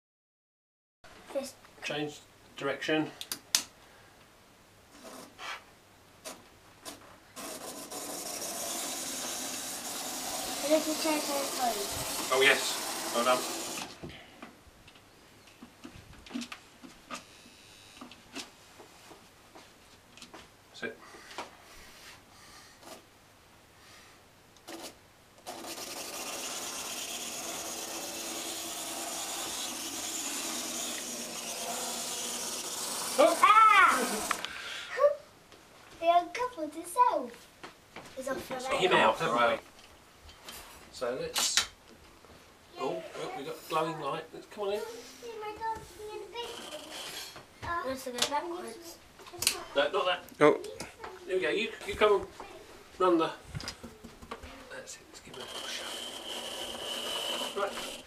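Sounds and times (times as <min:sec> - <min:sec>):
tiny wheels rattling on track: 0:07.4 - 0:13.8, 0:25.4 - 0:34.4, 0:46.4 - 0:47.4, 0:55.3 - 0:58.0
model train motor whirring: 0:07.4 - 0:14.0, 0:25.4 - 0:34.6, 0:46.4 - 0:47.4, 0:55.3 - 0:58.0.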